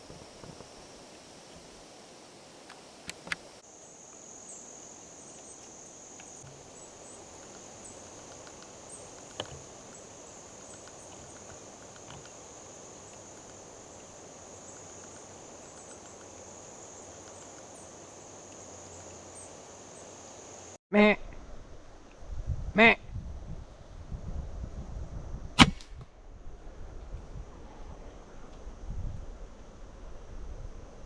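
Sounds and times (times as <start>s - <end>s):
faint chirps: 0.0s - 20.8s
high-pitched insect trill: 0.0s - 20.8s
sharp click: 25.6s - 26.1s.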